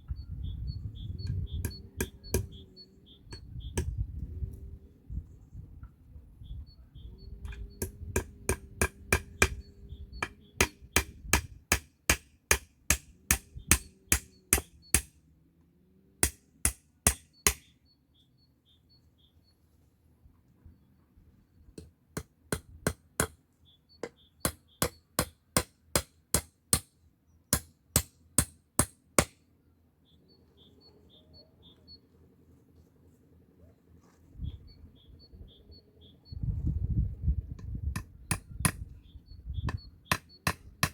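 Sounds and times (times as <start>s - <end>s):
faint birds chirping: 0.0s - 11.4s, 13.1s - 16.2s, 16.9s - 26.0s, 29.4s - 40.9s
hammer driving nails into wood: 10.2s - 15.1s, 16.2s - 17.6s, 24.5s - 26.9s.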